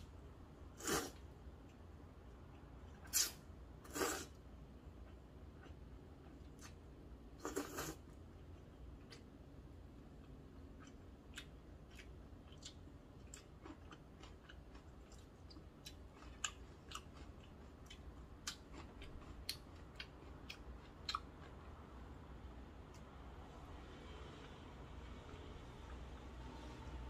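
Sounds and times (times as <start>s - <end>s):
wet chewing sounds: 10.2s - 21.6s.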